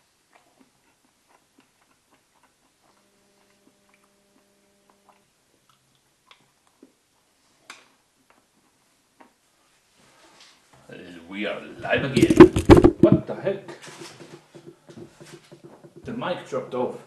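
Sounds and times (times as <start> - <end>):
person chewing: 0.0 - 7.3
faint steady hum: 0.0 - 17.0.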